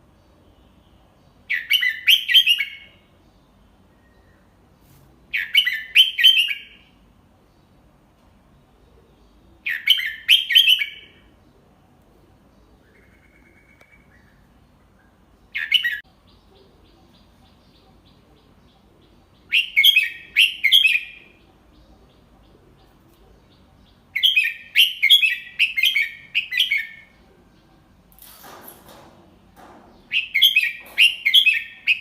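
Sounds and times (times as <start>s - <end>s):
bird whistled song: 1.5s - 3.1s, 5.3s - 6.9s, 9.6s - 11.3s, 12.8s - 16.0s, 19.4s - 21.4s, 24.1s - 27.2s, 30.0s - 32.0s.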